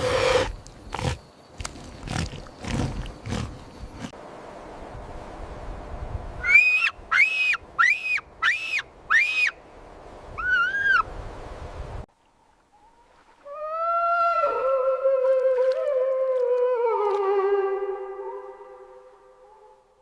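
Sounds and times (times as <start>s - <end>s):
animal calling high calls: 6.4s - 9.6s, 10.4s - 11.0s.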